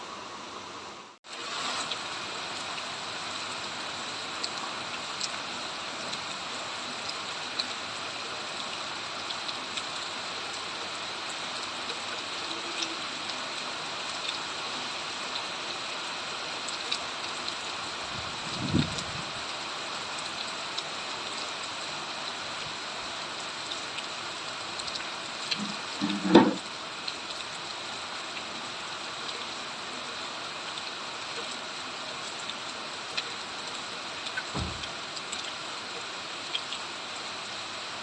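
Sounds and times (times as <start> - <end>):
steady rain falling: 0.0 - 38.0
stream running: 0.0 - 38.0
short low thump: 34.5 - 34.9.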